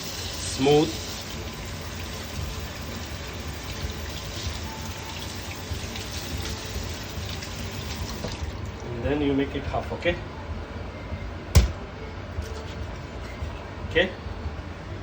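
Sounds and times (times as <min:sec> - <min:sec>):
tap water running: 0:00.0 - 0:08.9.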